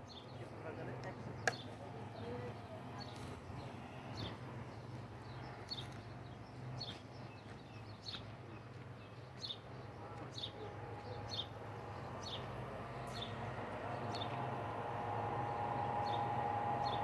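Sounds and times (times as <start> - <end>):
low hum: 10.5 - 17.0.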